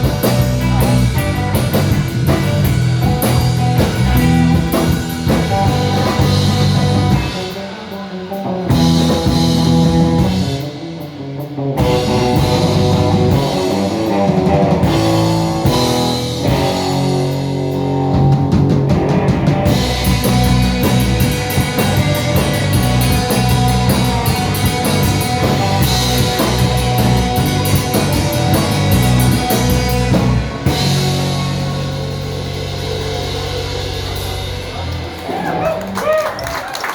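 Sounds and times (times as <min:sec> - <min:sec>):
rock band playing live: 0:00.0 - 0:36.9.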